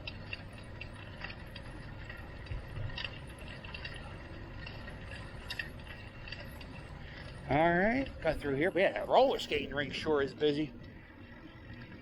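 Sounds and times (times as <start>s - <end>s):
wind rumble on microphone: 0.0s - 9.0s
bike clicks and rattles: 0.0s - 12.0s.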